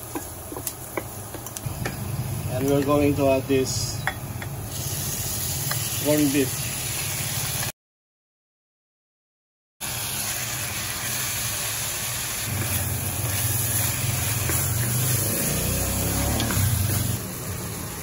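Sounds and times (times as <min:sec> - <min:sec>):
meat and onions sizzling in pan: 0:00.0 - 0:07.7, 0:09.8 - 0:18.0
wooden spatula stirring: 0:12.5 - 0:15.2.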